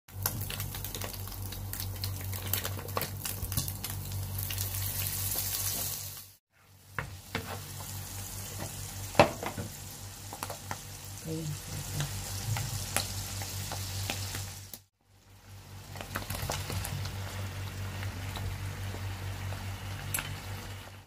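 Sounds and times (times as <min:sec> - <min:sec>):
oil crackling and popping: 0:00.1 - 0:06.4, 0:10.2 - 0:11.0, 0:11.9 - 0:14.9, 0:15.7 - 0:21.0
food sizzling in oil: 0:00.1 - 0:21.0.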